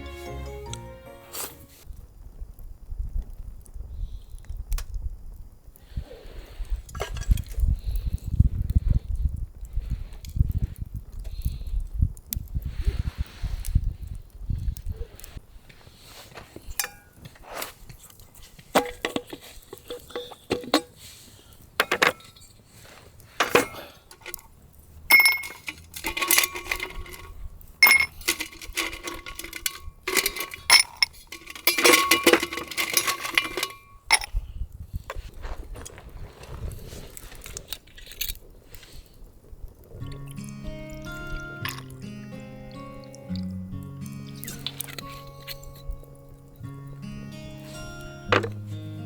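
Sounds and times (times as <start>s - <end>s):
ice cubes clinking in glass: 25.1s - 34.3s, 41.0s - 41.9s.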